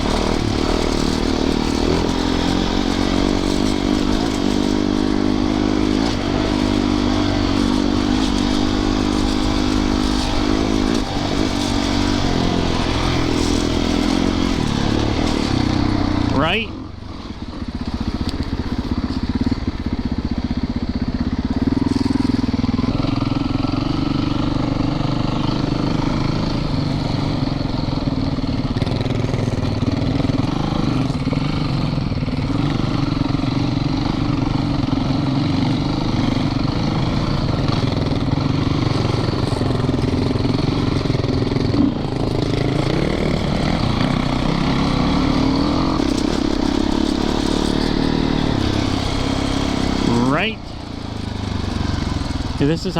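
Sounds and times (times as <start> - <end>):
dirt bike engine running: 0.0 - 52.9.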